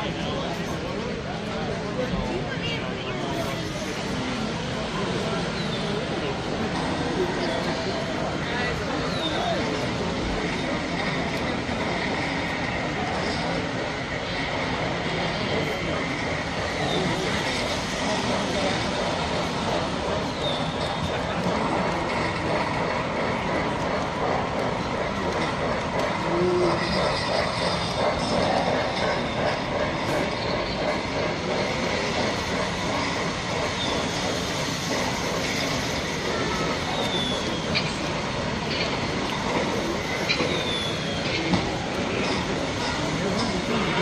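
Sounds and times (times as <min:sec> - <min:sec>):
model trains running on track: 0:00.0 - 0:44.0.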